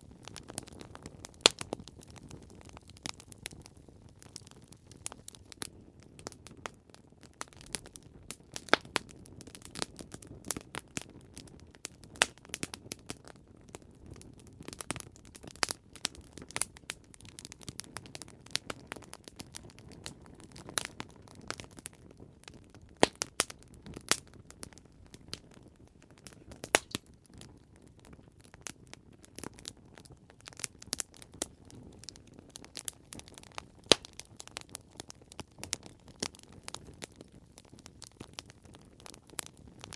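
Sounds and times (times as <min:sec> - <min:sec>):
campfire crackling: 0:00.0 - 0:39.9
low rumble of flames: 0:00.0 - 0:39.9.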